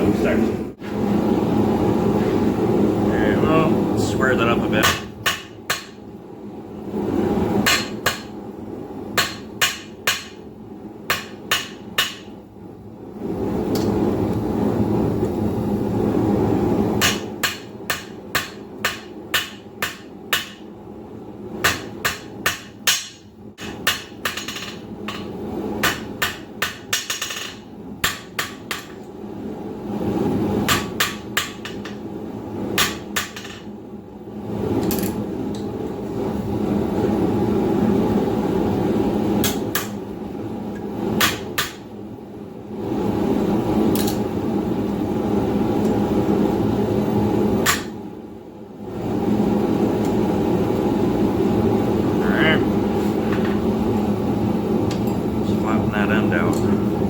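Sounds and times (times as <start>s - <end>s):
forge roaring: 0.0s - 4.9s, 48.9s - 57.0s
hammer striking steel on anvil: 4.8s - 6.0s, 7.6s - 8.3s, 9.2s - 10.4s, 11.1s - 12.3s, 17.0s - 20.7s, 21.6s - 29.0s, 32.8s - 33.6s, 41.2s - 41.8s.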